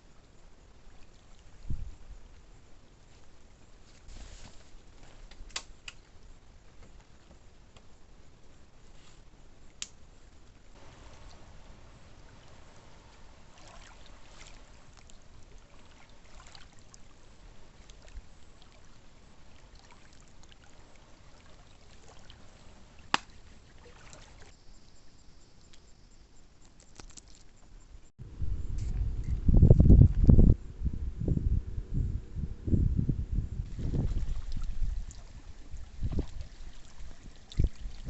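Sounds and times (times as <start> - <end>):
water trickling and lapping: 0.0 - 7.5, 10.7 - 27.8, 33.7 - 38.0.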